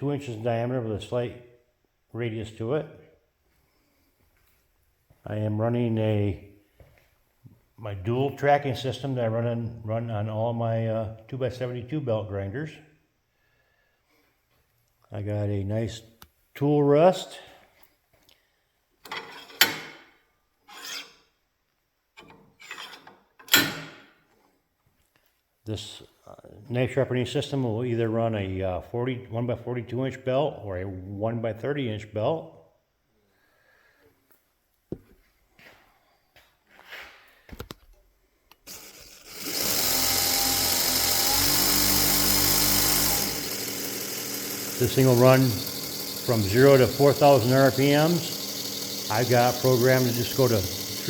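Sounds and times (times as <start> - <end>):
metal scraping rubs: 19.1 - 19.9, 20.6 - 21.3, 22.5 - 23.3
electric motor running: 38.7 - 51.0.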